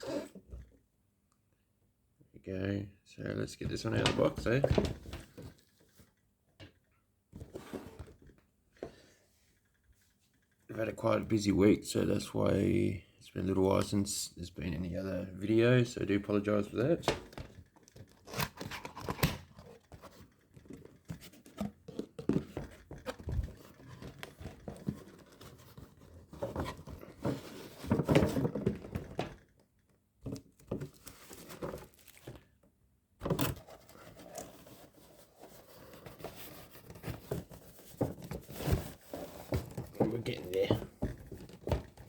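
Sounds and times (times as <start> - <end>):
packaging crinkling and tearing: 31.1 - 32.5.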